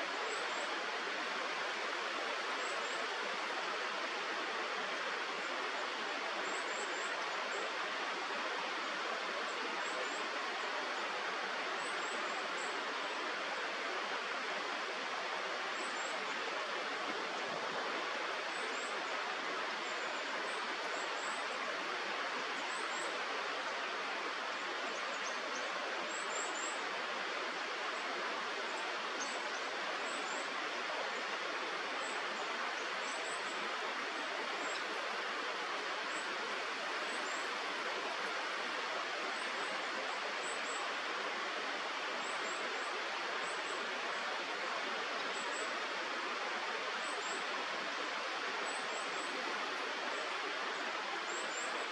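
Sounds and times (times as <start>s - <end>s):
river rushing: 0.0s - 51.9s.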